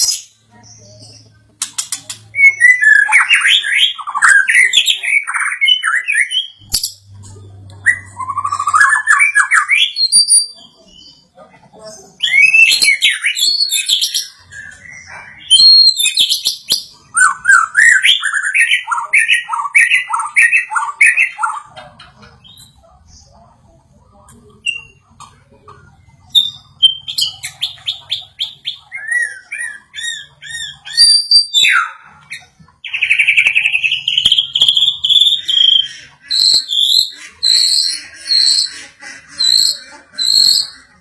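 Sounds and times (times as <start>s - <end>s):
bird whistled song: 2.3s - 7.0s, 7.8s - 11.2s, 12.2s - 21.6s, 26.3s - 38.6s.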